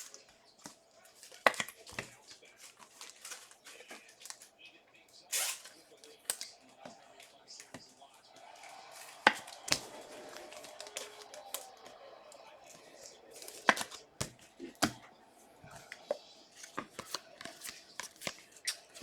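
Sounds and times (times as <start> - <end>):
cards clicking and tapping: 0.0 - 4.6, 5.6 - 19.0
wrappers rustling: 0.0 - 7.2.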